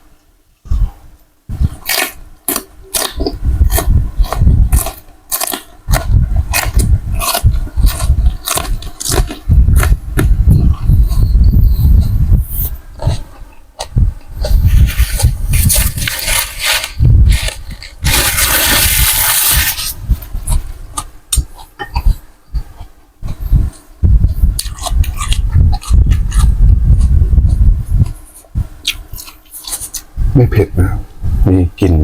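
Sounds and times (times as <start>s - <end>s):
chewing: 1.7s - 19.6s, 20.4s - 23.8s, 24.5s - 28.2s, 28.8s - 30.1s
slurping noodle soup: 14.5s - 20.0s.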